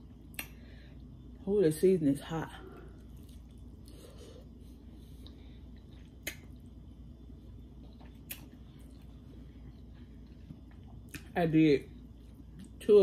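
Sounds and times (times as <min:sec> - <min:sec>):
wet chewing: 0:03.0 - 0:04.4, 0:07.6 - 0:11.4.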